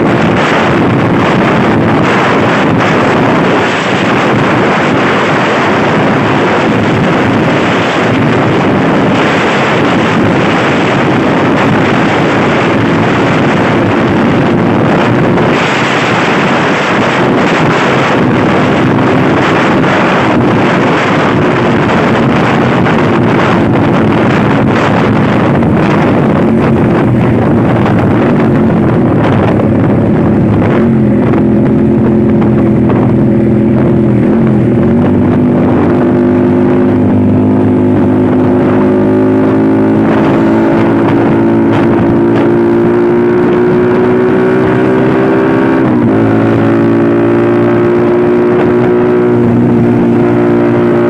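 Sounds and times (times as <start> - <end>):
vehicle engine running: 0.0 - 51.0
wind noise on microphone: 0.0 - 51.0.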